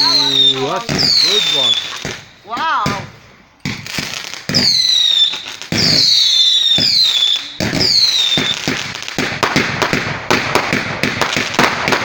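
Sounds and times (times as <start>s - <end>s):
firework whistles: 0.0s - 2.5s, 3.9s - 8.9s
crackling firework pops: 0.0s - 12.0s
firework bangs: 0.0s - 12.0s.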